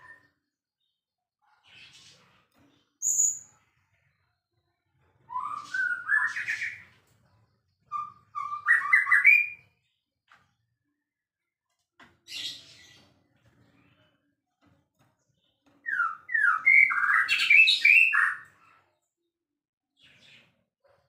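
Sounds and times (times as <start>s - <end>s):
songbird singing: 15.6s - 18.4s.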